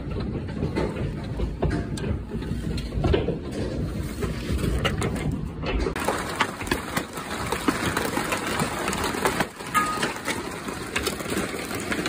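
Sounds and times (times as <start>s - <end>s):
hailstones pelting down: 3.6s - 12.0s.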